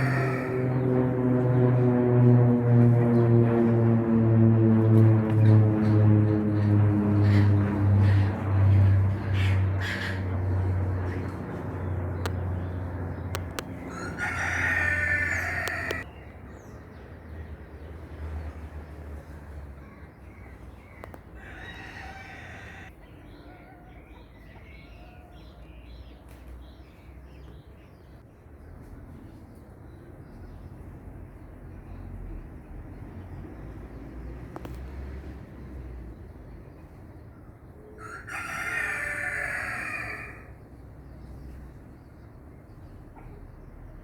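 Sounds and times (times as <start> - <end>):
rooster crowing: 0.0 - 0.8, 13.8 - 16.1, 21.4 - 22.9, 38.0 - 40.6
small birds chirping: 7.3 - 38.4.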